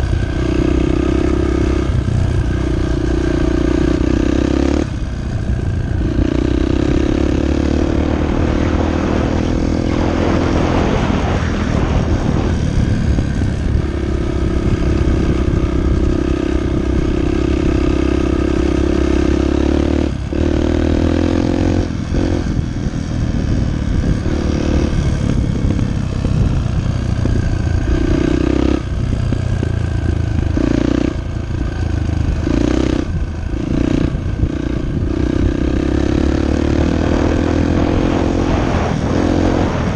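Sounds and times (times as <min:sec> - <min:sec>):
dirt bike engine revving: 0:00.0 - 0:39.9
rushing noise: 0:07.2 - 0:15.4.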